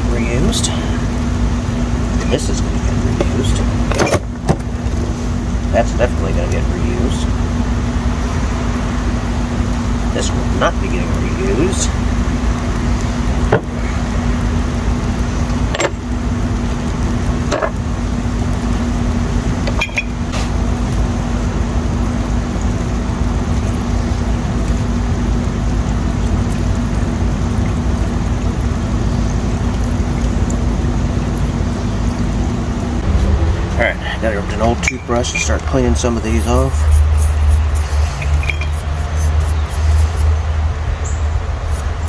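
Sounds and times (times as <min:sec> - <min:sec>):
steady mechanical hum: 0:00.0 - 0:42.0
metal parts clinking: 0:15.7 - 0:16.0, 0:17.5 - 0:17.8
deep rumble: 0:29.5 - 0:37.8.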